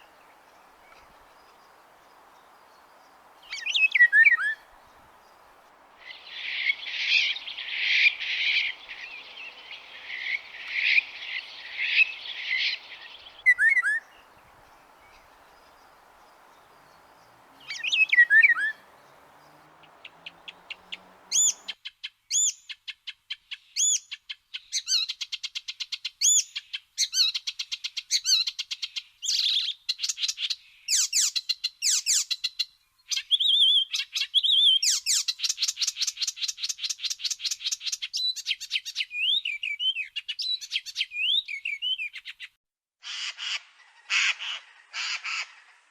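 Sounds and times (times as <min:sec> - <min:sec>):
songbirds singing trills and chirps: 0:00.0 - 0:21.8.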